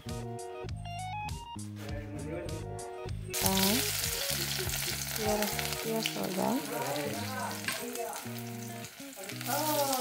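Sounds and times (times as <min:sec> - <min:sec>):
background music: 0:00.0 - 0:10.0
onion sizzling in hot oil: 0:03.3 - 0:10.0.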